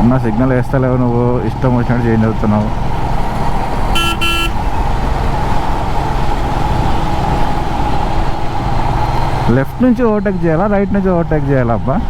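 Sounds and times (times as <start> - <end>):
motorcycle engine and road rumble: 0.0 - 12.0
vehicle horn toots: 3.9 - 4.8.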